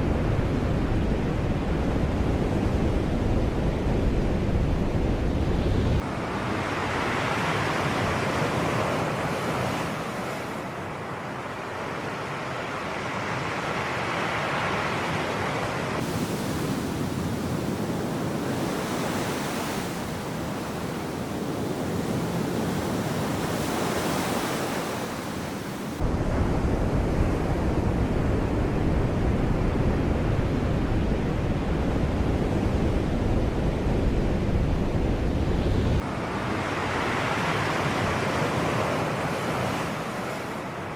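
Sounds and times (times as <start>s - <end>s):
wind rumble on microphone: 0.0s - 7.0s, 15.4s - 40.7s
sea waves washing ashore: 6.0s - 28.8s, 29.9s - 40.9s.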